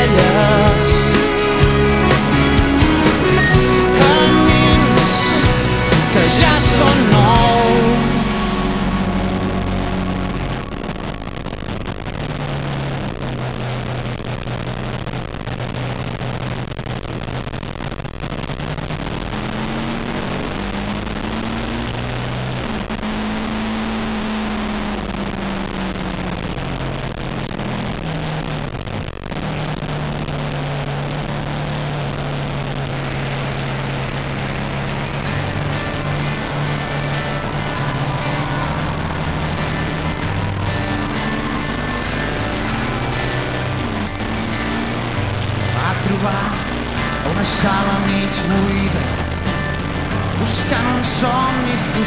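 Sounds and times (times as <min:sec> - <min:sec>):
motorcycle engine running hard: 0:00.0 - 0:12.8, 0:32.9 - 0:52.0
wind rush: 0:32.9 - 0:47.2.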